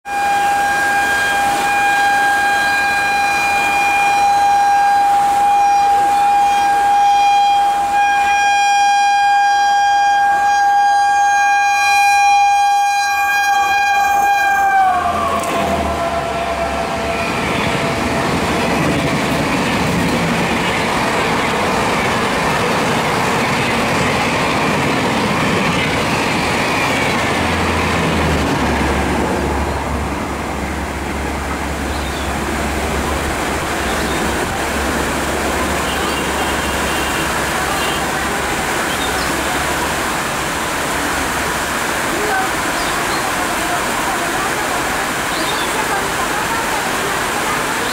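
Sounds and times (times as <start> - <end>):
train horn long blast: 0.0 - 19.7, 32.3 - 38.9.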